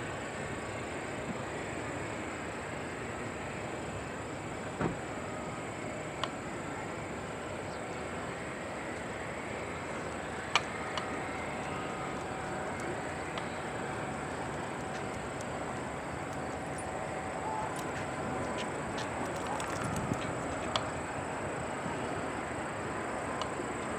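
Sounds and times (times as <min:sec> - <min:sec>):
distant jet aircraft rumble: 0:05.8 - 0:22.4.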